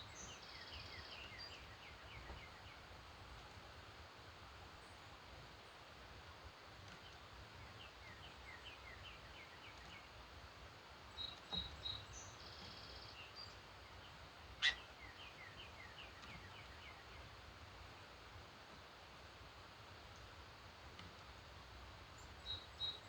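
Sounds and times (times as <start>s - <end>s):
bird chirps: 14.6s - 14.9s.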